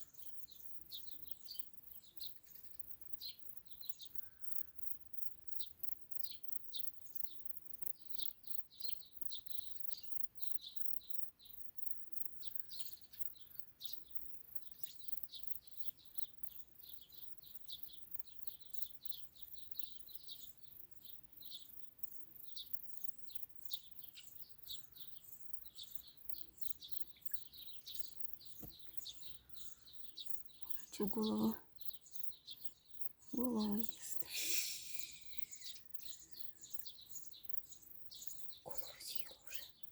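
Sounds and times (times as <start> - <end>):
small birds chirping: 0.0 - 39.9
insects stridulating: 33.2 - 39.7.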